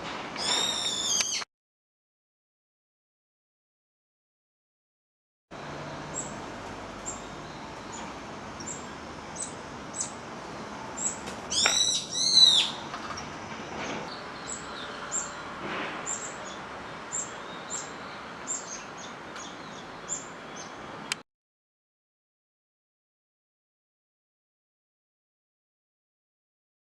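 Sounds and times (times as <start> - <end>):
bulbul shrill calls: 0.4 - 1.4, 11.0 - 12.8
thin high bird call notes: 0.4 - 1.4, 11.5 - 12.8.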